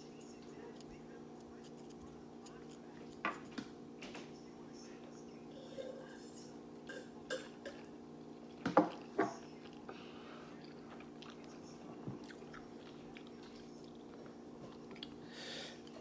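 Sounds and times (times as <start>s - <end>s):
person chewing food: 7.7s - 16.0s.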